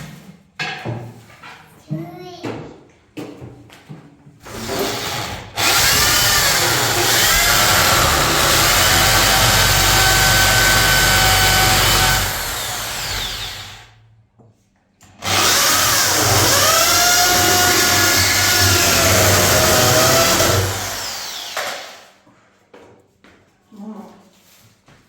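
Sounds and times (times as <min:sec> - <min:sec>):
electric power tool motor whine: 0:04.5 - 0:13.9, 0:15.2 - 0:22.0.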